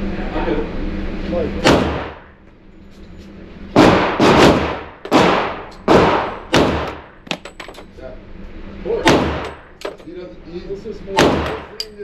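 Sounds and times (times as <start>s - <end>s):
pistol shots with echo: 1.6s - 2.2s, 3.8s - 7.1s, 9.0s - 9.6s, 11.2s - 11.8s.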